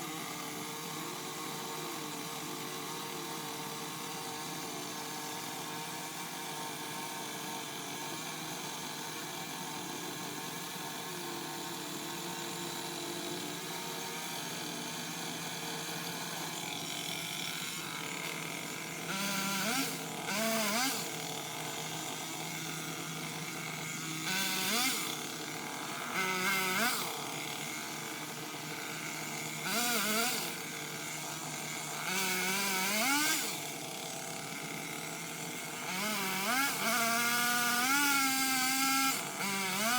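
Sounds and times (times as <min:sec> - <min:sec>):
pole saw revving: 0:11.7 - 0:39.9.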